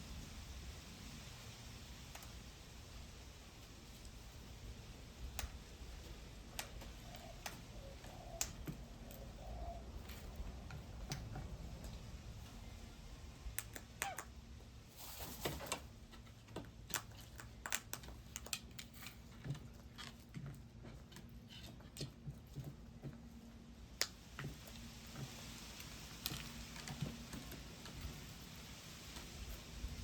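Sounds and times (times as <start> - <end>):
birds pecking seed: 1.0 - 30.0.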